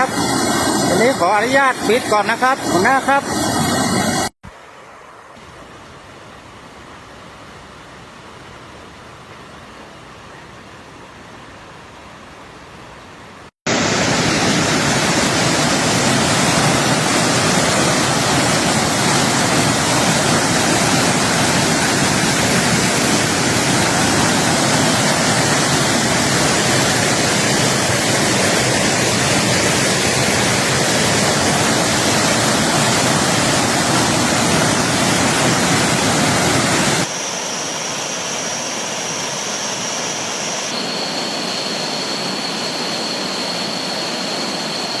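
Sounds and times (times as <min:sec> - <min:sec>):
roar of floodwater over waterfall: 0:13.7 - 0:37.1.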